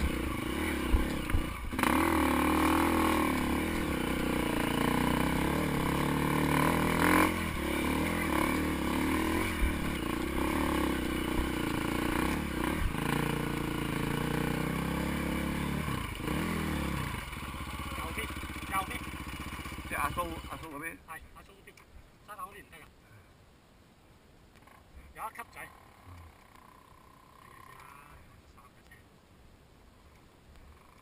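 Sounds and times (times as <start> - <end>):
dirt bike engine revving: 0.0 - 20.8.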